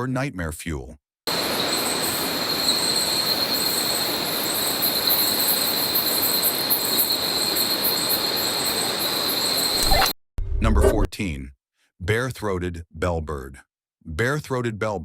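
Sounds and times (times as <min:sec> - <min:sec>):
birds screeching in a cave: 0:01.3 - 0:10.1.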